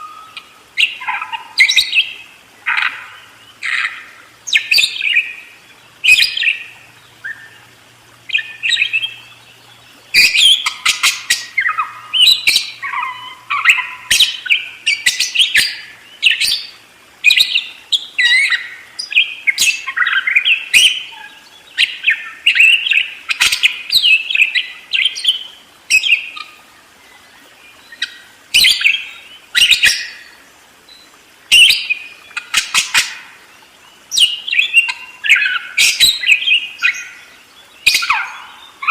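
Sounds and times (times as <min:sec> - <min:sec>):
budgerigars chattering and warbling: 0:00.0 - 0:05.4, 0:10.2 - 0:26.6, 0:31.5 - 0:33.4, 0:34.2 - 0:38.9.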